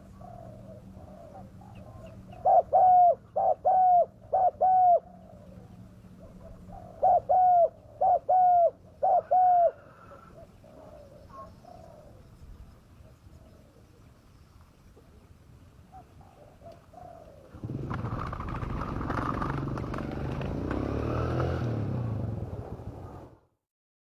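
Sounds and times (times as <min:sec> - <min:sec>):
dove cooing: 0:00.0 - 0:12.4, 0:13.0 - 0:14.1, 0:14.9 - 0:20.4.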